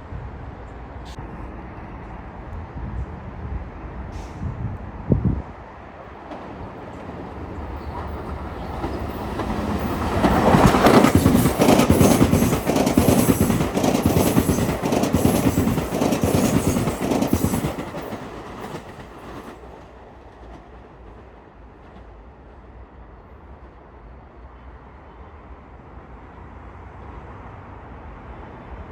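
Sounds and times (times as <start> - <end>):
train passing: 0.2 - 28.8
wheels clicking over rail joints: 6.2 - 19.6.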